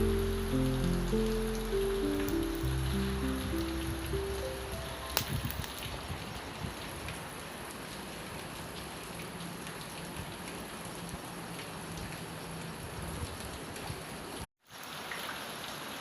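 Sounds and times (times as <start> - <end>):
wood fire crackling: 0.0 - 7.4
rain patter: 0.0 - 16.0.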